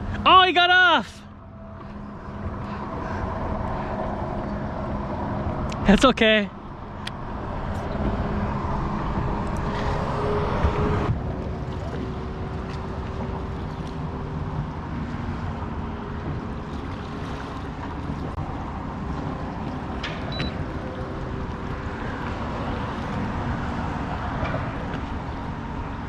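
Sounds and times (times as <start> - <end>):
boat motor humming: 0.0 - 26.0
wind noise on microphone: 7.4 - 19.6.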